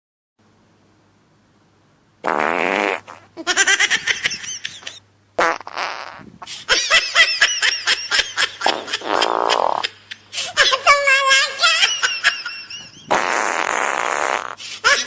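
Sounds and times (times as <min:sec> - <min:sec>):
fart sounds: 0:02.2 - 0:03.3, 0:05.4 - 0:06.4, 0:08.6 - 0:09.8, 0:13.1 - 0:14.6.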